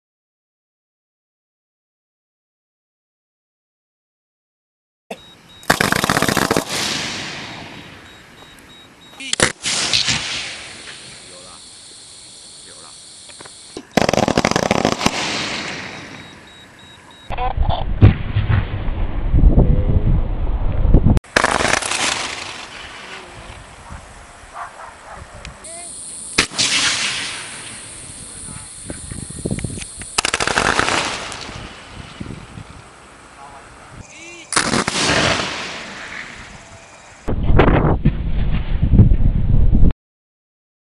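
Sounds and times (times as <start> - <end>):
firework bang: 5.6 - 8.1, 9.4 - 11.6, 13.4 - 16.4, 17.9 - 19.6, 21.3 - 23.6, 26.3 - 32.2, 34.6 - 36.6, 37.3 - 39.5
fireworks hissing tail: 5.6 - 8.6, 9.2 - 17.1, 21.3 - 36.9
fireworks crackling pops: 5.6 - 16.5, 21.2 - 24.8, 25.4 - 32.5, 34.4 - 36.6
firework pops: 9.3 - 11.1, 21.3 - 23.2, 26.3 - 27.8, 28.9 - 31.6.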